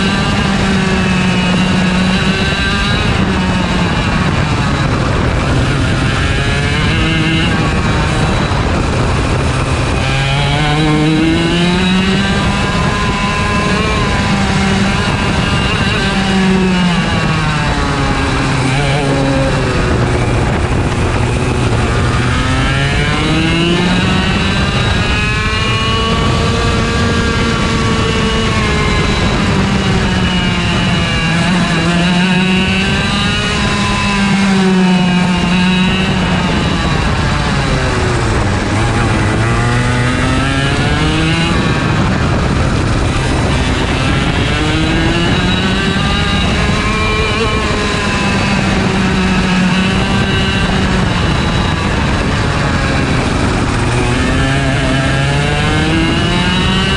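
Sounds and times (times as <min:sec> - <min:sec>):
kart engine racing: 0:00.0 - 0:56.9.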